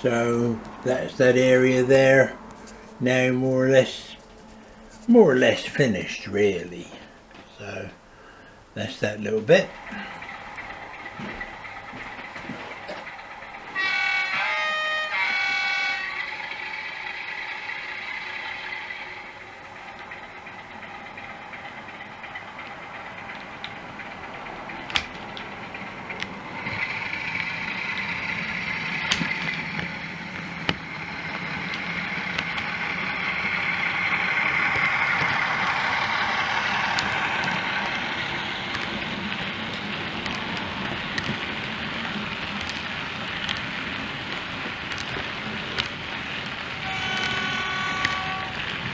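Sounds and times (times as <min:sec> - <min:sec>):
model train diesel engine sound: 0:00.0 - 0:48.9
sharp clicks: 0:24.7 - 0:48.9.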